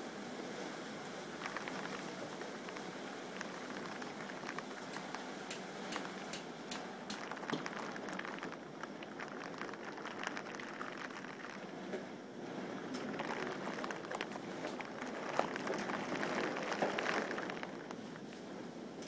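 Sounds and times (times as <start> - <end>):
steady rain hissing: 0.0 - 19.0
sharp drops ticking: 1.4 - 11.7.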